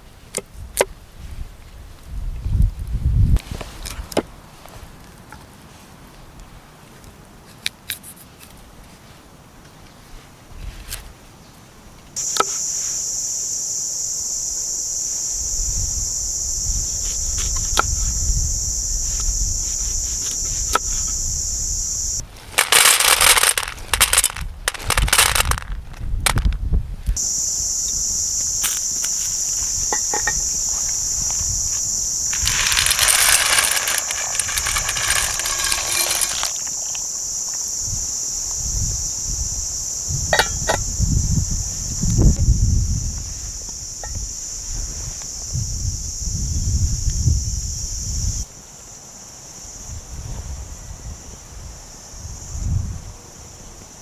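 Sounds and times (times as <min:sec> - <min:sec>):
insects buzzing: 0:12.2 - 0:26.6, 0:27.2 - 0:42.0
loud rustling and knocking: 0:22.4 - 0:26.6, 0:32.3 - 0:37.0
sharp clicks and crackles: 0:22.5 - 0:26.6, 0:32.3 - 0:37.0.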